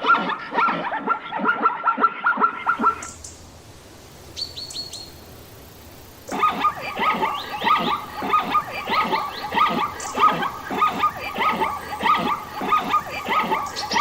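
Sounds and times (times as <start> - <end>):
animals yelping in chorus: 0.0 - 3.2, 6.1 - 14.0.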